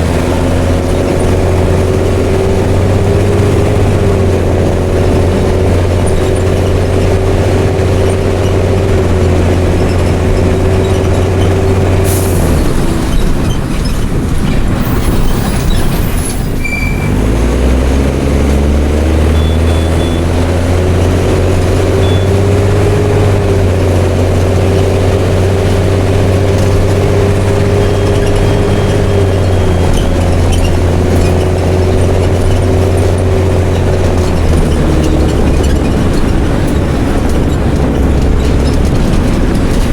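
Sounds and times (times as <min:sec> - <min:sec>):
bus diesel engine pulling away: 0:00.0 - 0:39.9.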